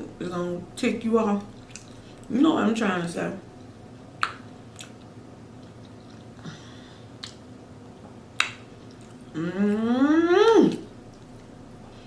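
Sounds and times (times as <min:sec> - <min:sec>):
mouth clicks and smacks chewing: 0:04.2 - 0:06.4, 0:07.2 - 0:07.4, 0:08.4 - 0:09.2
person humming mmm: 0:09.2 - 0:10.9.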